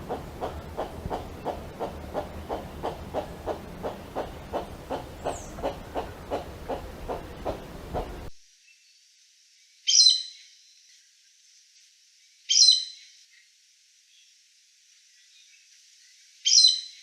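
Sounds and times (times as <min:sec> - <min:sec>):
forest bird calling: 0:00.0 - 0:08.4.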